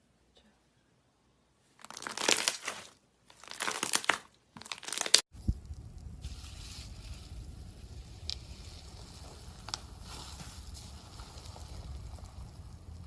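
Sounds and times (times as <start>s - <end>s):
slime crackling and crunching: 1.8s - 5.3s, 6.2s - 13.0s
low rumble: 5.3s - 13.0s.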